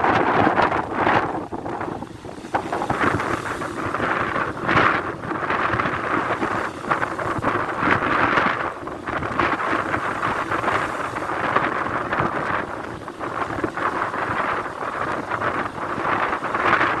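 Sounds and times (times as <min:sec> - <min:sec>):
strong wind gusting on microphone: 0:00.0 - 0:17.0
waves rushing: 0:00.0 - 0:17.0.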